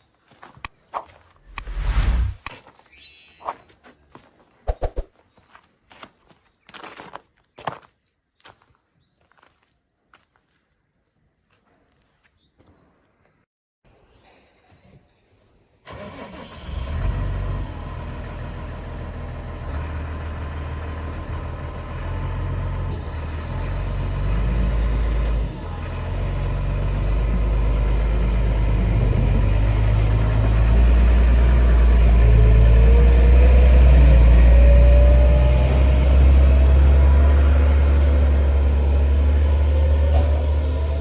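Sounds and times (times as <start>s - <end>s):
heavy engine rumbling: 16.9s - 41.0s.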